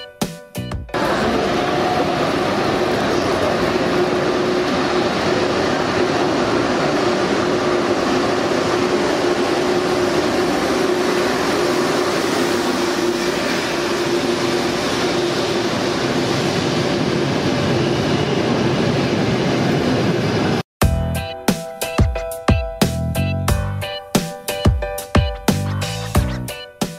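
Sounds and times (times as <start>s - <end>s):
train hum: 0.9s - 22.0s
electric train rolling rumble: 0.9s - 26.6s.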